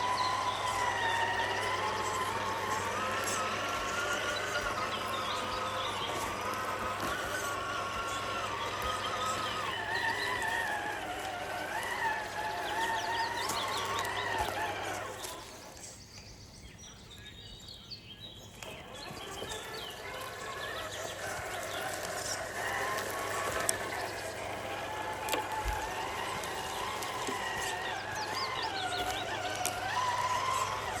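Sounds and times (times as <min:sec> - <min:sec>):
electric motor whining: 0:00.0 - 0:15.9, 0:18.4 - 0:31.0
drivetrain clicks: 0:18.5 - 0:31.0.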